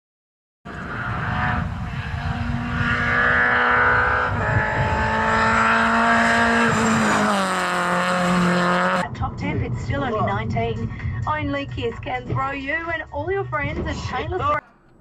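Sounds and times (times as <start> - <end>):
car engine at high revs: 0.7 - 9.0.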